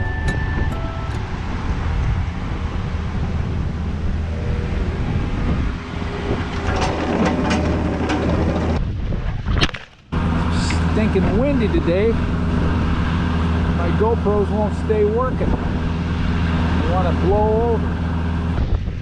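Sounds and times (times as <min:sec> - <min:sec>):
engine running: 0:00.0 - 0:09.3, 0:10.1 - 0:19.0
wind noise on microphone: 0:00.0 - 0:19.0
sharp knocks or clanks: 0:06.3 - 0:08.8.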